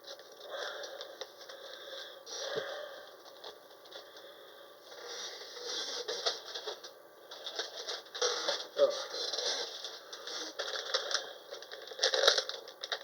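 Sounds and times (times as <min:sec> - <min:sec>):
scratchy rustling and scraping: 0:05.0 - 0:11.1.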